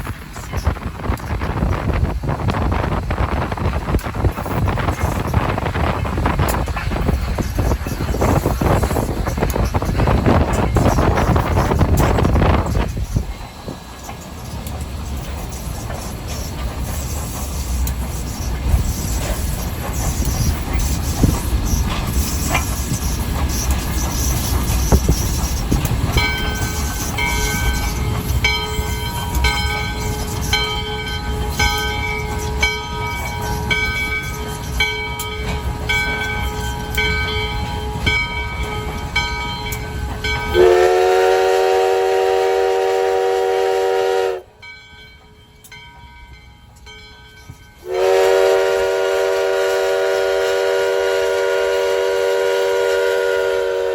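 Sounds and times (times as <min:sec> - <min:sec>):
steam locomotive rumbling: 0:00.0 - 0:53.9
locomotive bell ringing: 0:24.3 - 0:40.8, 0:44.5 - 0:48.2
steam whistle blast: 0:40.6 - 0:44.5, 0:47.8 - 0:53.9.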